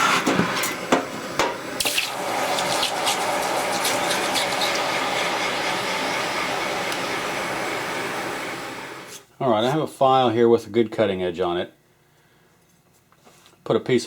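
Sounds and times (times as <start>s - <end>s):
hot steel hissing in liquid: 1.6s - 9.3s.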